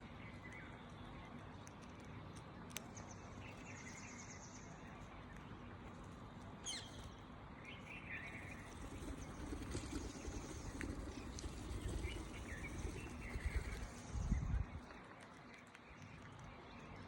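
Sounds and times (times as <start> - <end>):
low background noise: 0.0 - 17.0
faint bird chirps and calls: 6.6 - 17.0.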